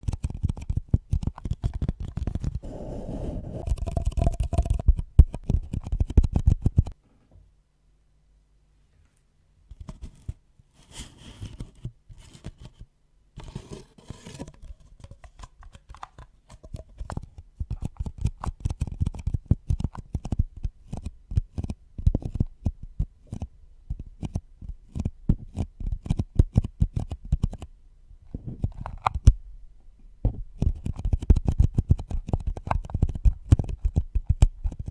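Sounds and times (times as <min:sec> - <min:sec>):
scratching on objects: 0:00.0 - 0:07.0, 0:09.7 - 0:27.6.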